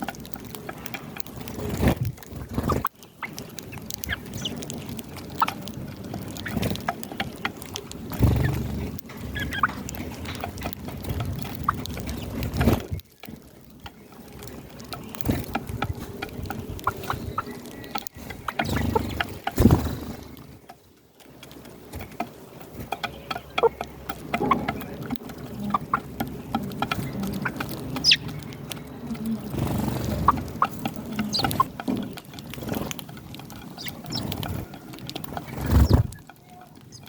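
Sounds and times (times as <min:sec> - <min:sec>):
small ticks and rustles: 0:00.0 - 0:37.0
hens clucking softly: 0:22.8 - 0:36.0.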